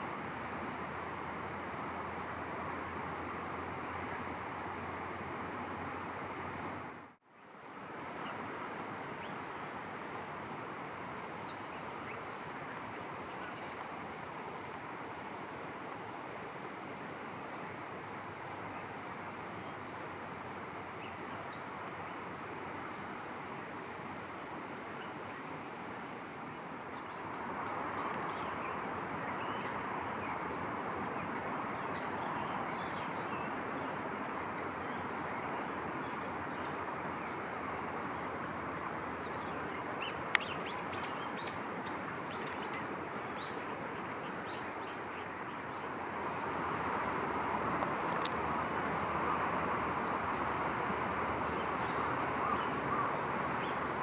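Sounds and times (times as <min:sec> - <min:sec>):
rushing background noise: 0:07.8 - 0:54.0
small birds chirping: 0:08.8 - 0:21.8, 0:24.0 - 0:46.8, 0:47.7 - 0:54.0.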